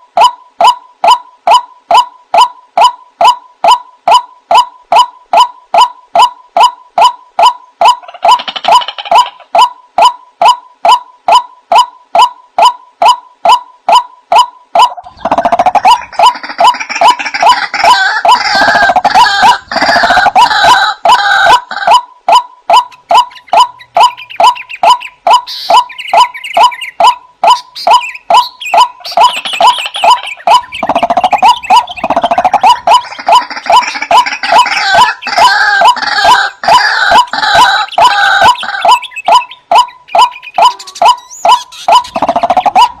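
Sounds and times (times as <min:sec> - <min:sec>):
waterhen calling: 0:00.0 - 0:43.0.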